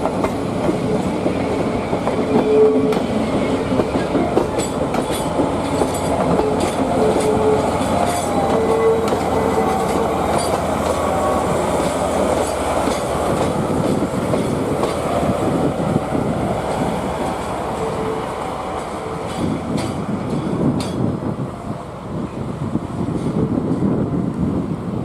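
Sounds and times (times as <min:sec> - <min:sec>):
train wheels clacking over rail joints: 0:00.0 - 0:15.8, 0:18.6 - 0:21.2
diesel locomotive moving slowly: 0:00.0 - 0:25.0.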